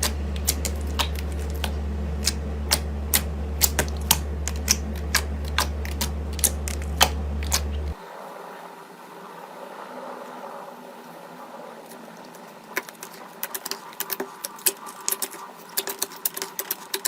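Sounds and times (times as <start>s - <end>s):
slime clicking and popping: 0.0s - 8.0s, 12.7s - 17.0s
slime squishing: 0.0s - 8.0s, 11.8s - 17.0s
low steady hum: 0.0s - 17.0s.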